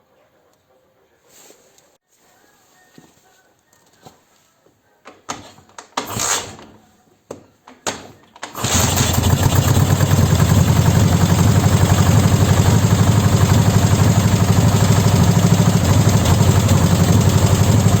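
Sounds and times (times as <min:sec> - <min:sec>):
motorcycle engine starting and idling: 0:06.0 - 0:06.6, 0:08.0 - 0:18.0.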